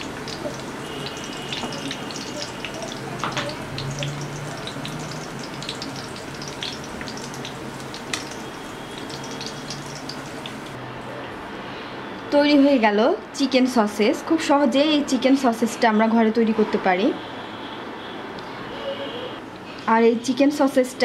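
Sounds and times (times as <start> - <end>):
sausages sizzling in oil: 0.0 - 10.8.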